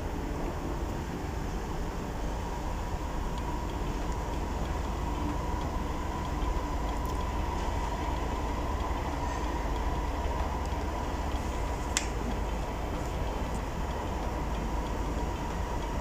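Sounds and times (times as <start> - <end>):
sharp click: 11.9 - 12.2.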